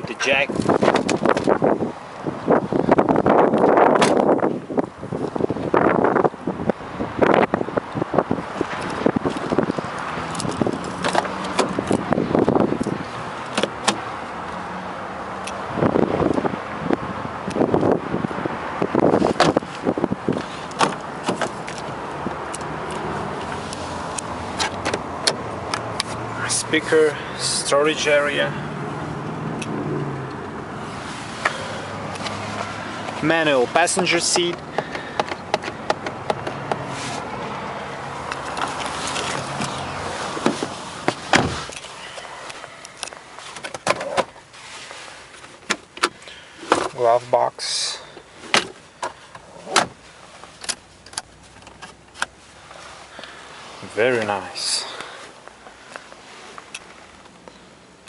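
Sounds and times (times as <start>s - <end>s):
seat latch clicks: 3.6s - 4.3s, 24.1s - 26.2s
seat locking clunk: 3.9s - 4.3s, 12.8s - 14.0s, 19.3s - 19.6s, 20.7s - 21.7s, 39.3s - 41.8s, 48.5s - 50.0s
clicks and knocks of car fittings: 12.8s - 14.0s, 20.7s - 21.9s, 34.5s - 36.8s, 45.4s - 47.0s
seat scraping along rails: 30.8s - 37.3s, 38.4s - 45.7s, 48.4s - 50.7s.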